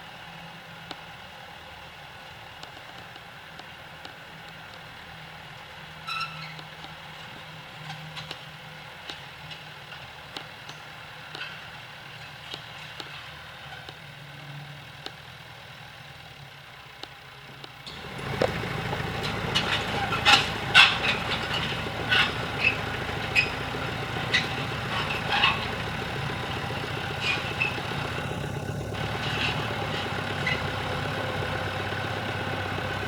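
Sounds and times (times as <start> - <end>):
tractor engine running: 0.0 - 33.0
high-pitched squeak: 6.1 - 6.6, 17.9 - 31.1
light clanks and clicks: 17.6 - 33.0.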